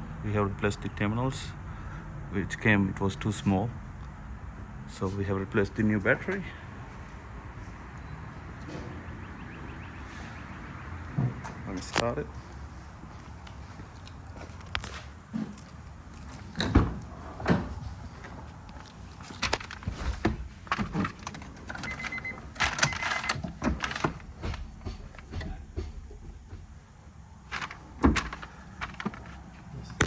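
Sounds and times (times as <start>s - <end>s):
car door and keys handled: 18.8s - 26.8s, 27.4s - 29.5s.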